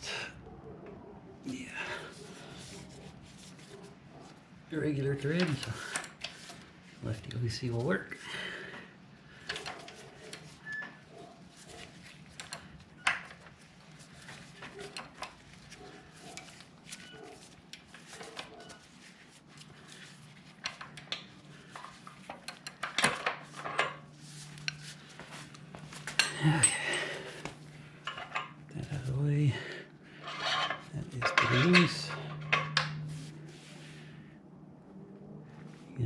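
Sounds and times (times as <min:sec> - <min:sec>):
metal tools clicking and clinking: 0:26.1 - 0:27.2, 0:28.0 - 0:28.6, 0:30.2 - 0:33.0.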